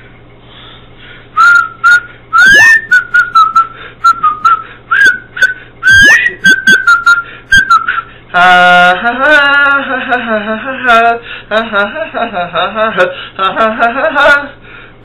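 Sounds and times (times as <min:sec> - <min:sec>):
person whistling a tune: 0:01.4 - 0:08.1.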